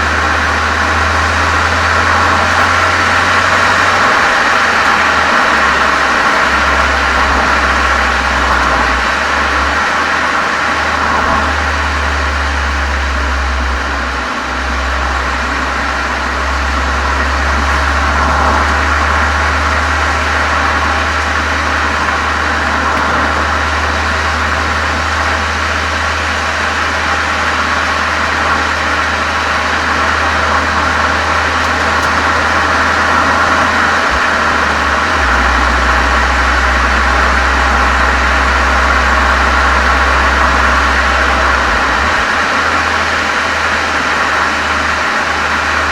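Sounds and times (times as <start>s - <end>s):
car engine deep drone: 0.0s - 45.9s.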